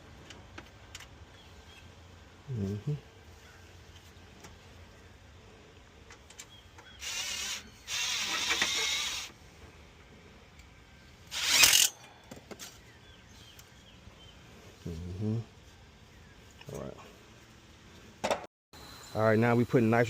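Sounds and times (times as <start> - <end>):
cordless drill driving screws: 7.0 - 9.3, 11.3 - 11.9.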